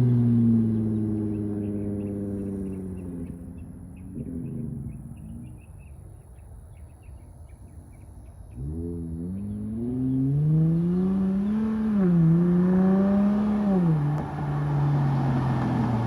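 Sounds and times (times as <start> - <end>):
car exhaust note revving: 8.6 - 16.0.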